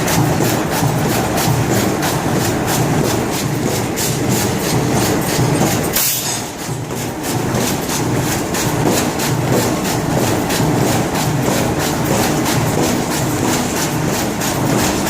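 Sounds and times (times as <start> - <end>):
industrial machine clattering: 0.0 - 15.0.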